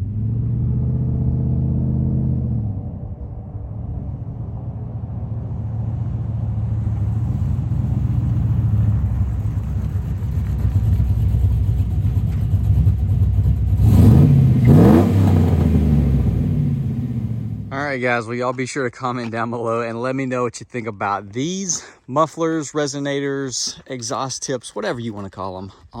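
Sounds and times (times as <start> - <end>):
car engine rumbling and revving: 0.0 - 18.0.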